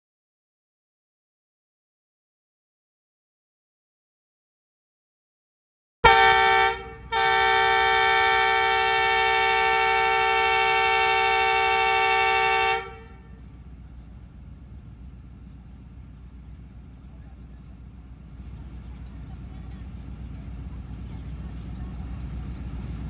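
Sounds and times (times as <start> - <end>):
diesel locomotive horn: 6.0 - 13.6.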